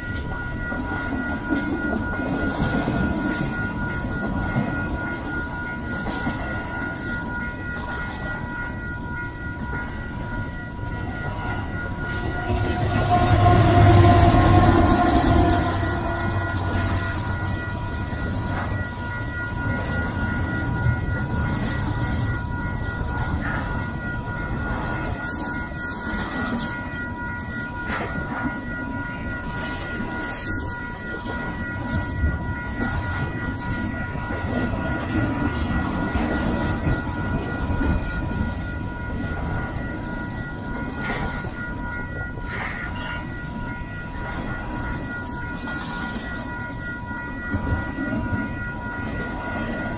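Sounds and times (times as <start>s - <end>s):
freight train wheels rumbling: 0.0s - 49.9s
high-pitched tone: 0.0s - 49.9s.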